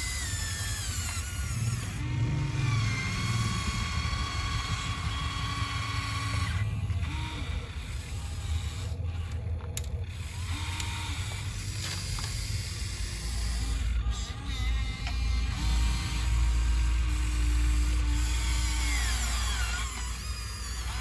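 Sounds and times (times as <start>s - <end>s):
low hum: 0.0s - 21.0s
small electric motors whirring: 0.0s - 21.0s.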